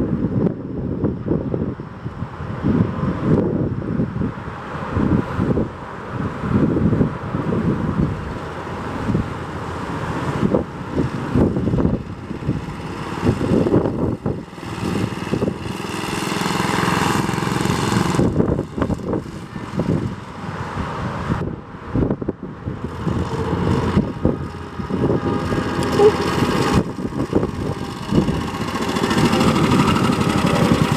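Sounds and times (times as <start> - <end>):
scooter engine running: 9.3 - 20.6, 22.7 - 30.9.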